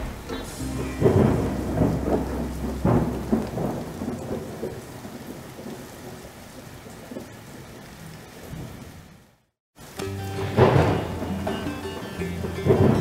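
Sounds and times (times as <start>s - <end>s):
loud rumbling surges: 0.0s - 6.4s
rushing water and rain: 0.0s - 13.0s.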